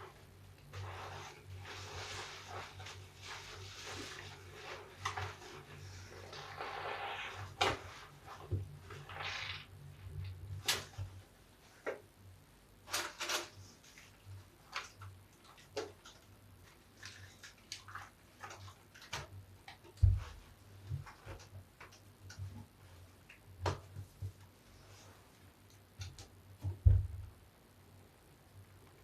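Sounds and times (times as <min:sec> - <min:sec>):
wet sponge squishes and crackles: 0:00.0 - 0:09.7, 0:13.7 - 0:21.6
thump: 0:26.6 - 0:27.3.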